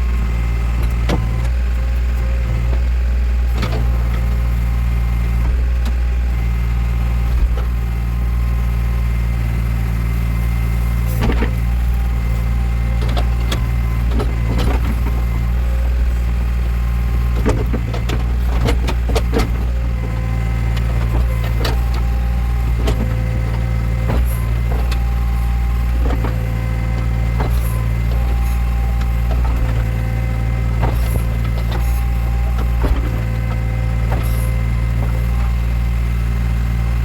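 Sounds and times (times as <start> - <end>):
diesel engine running: 0.0 - 37.0
digging gear knocks and clanks: 17.2 - 30.1, 30.7 - 35.6.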